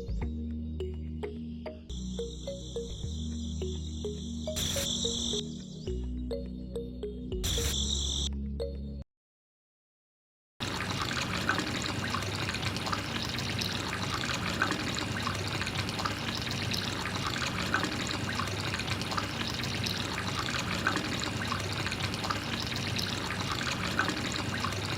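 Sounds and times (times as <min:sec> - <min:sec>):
small water splashes: 0:10.6 - 0:24.9
water trickling and pouring: 0:10.6 - 0:24.9.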